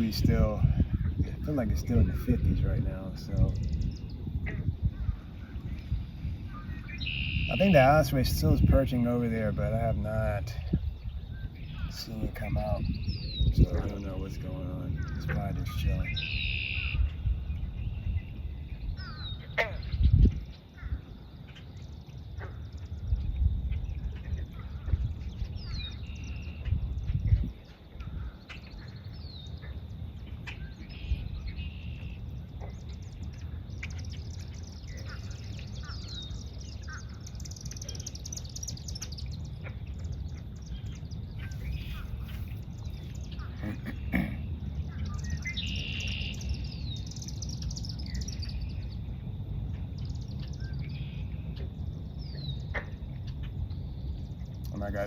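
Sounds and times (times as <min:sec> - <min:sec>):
steady low rumble: 0:00.0 - 0:55.0
wild birds chirping: 0:00.0 - 0:55.0
buzzy bird notes: 0:06.5 - 0:10.5
buzzy bird call: 0:41.4 - 0:46.6.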